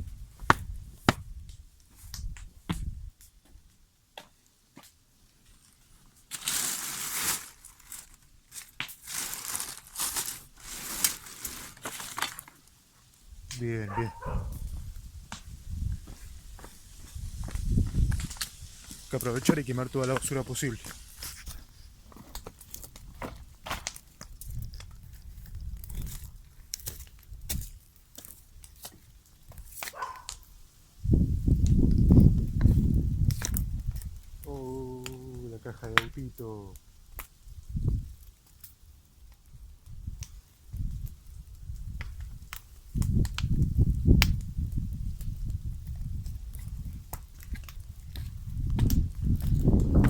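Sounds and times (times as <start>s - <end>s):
trash being crumpled by hand: 6.3s - 12.6s.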